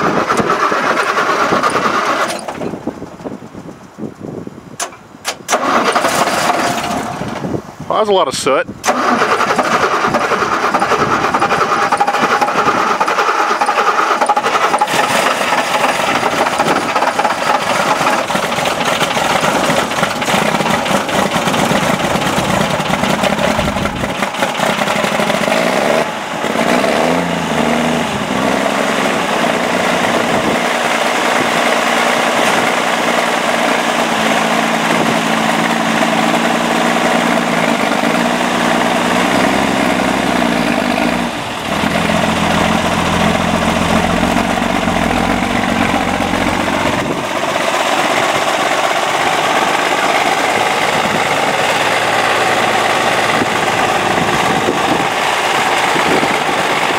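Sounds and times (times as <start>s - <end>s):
diesel engine idling: 5.5s - 56.9s.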